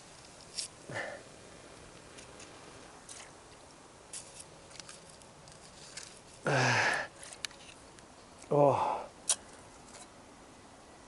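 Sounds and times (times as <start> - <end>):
faint clicks and rustles: 0.0 - 8.5.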